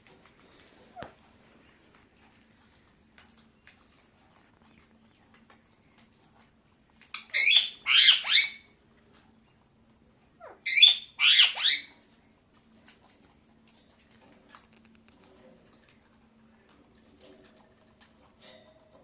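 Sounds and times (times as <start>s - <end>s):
parakeet squawking: 7.1s - 8.7s, 10.4s - 11.9s.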